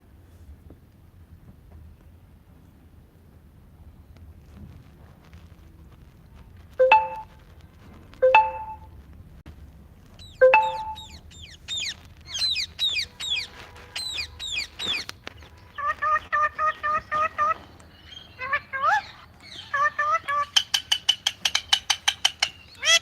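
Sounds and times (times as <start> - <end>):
parrot calling: 10.2 - 15.1, 15.7 - 23.0.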